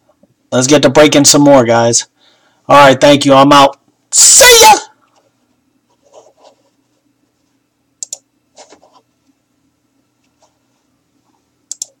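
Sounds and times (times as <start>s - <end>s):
faint steady hum: 0.0s - 12.0s
sharp clicks: 8.0s - 8.2s, 11.7s - 12.0s.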